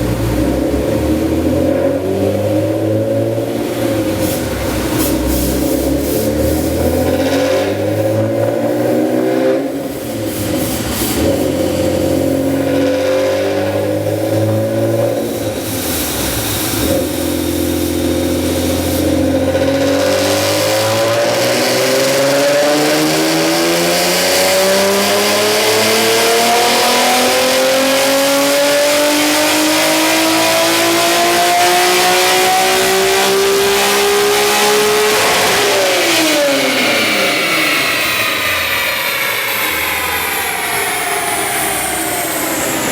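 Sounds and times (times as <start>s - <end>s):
car engine revving on dyno: 0.0s - 42.9s.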